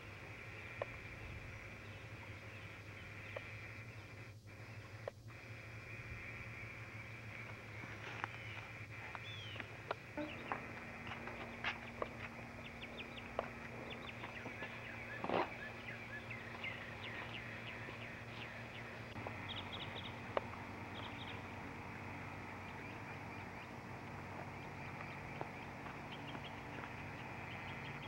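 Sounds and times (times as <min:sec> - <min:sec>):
small birds chirping: 0:00.0 - 0:28.0
steady low hum: 0:00.0 - 0:28.0.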